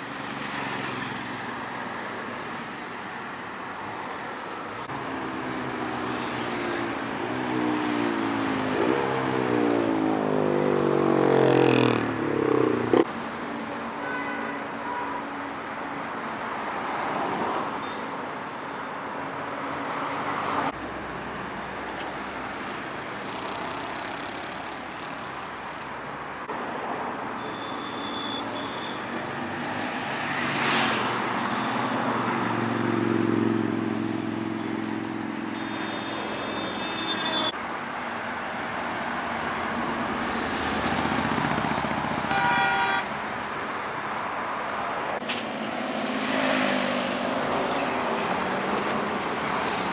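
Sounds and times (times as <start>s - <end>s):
road traffic noise: 0.0s - 49.9s
motorbike accelerating past: 7.7s - 13.1s.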